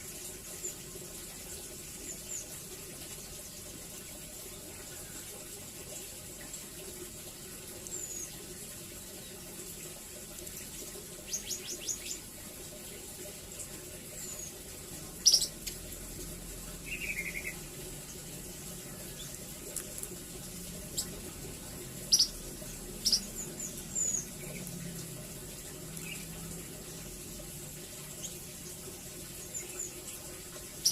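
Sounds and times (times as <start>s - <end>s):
bird chirps and trills: 10.6s - 12.3s, 14.1s - 15.8s, 16.8s - 18.2s, 20.8s - 21.3s, 22.0s - 25.0s, 26.0s - 26.5s, 28.1s - 30.9s.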